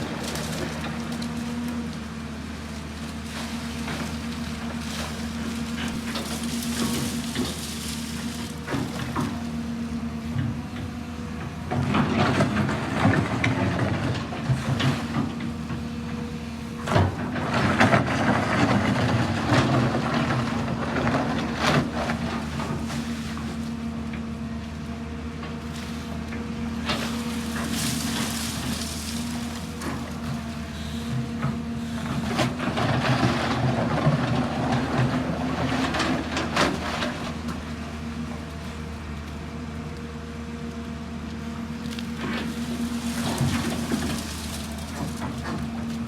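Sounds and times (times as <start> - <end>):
excavator engine running: 0.0 - 46.0
scraping and clattering: 3.7 - 9.4, 26.8 - 37.3.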